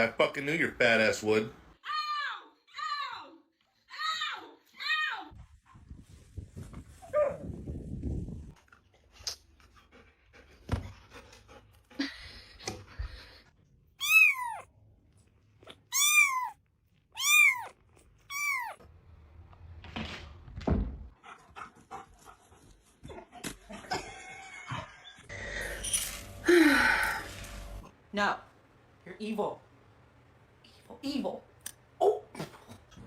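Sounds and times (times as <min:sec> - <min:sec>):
pet animal crying: 0:14.0 - 0:14.7, 0:15.9 - 0:16.6, 0:17.2 - 0:18.8.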